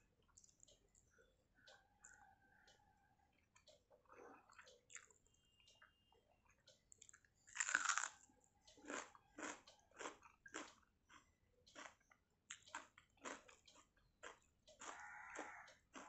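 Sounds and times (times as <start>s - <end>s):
person chewing: 3.3s - 16.0s.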